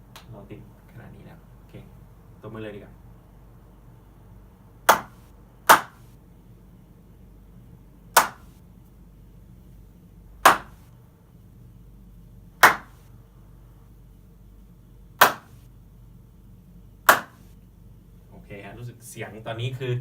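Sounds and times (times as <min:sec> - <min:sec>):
hand claps in a small room: 0:00.1 - 0:00.4, 0:04.9 - 0:06.1, 0:08.1 - 0:08.6, 0:10.4 - 0:10.9, 0:12.6 - 0:13.1, 0:15.2 - 0:15.6, 0:17.0 - 0:17.5.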